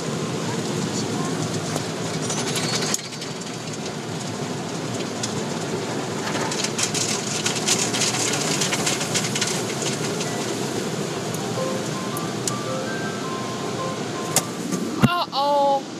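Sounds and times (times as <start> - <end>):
water pattering on car: 0.0 - 11.5.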